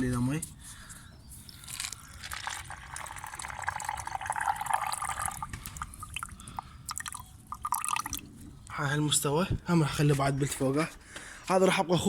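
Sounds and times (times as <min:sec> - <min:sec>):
water pouring into container: 0:02.2 - 0:06.3, 0:06.9 - 0:08.3.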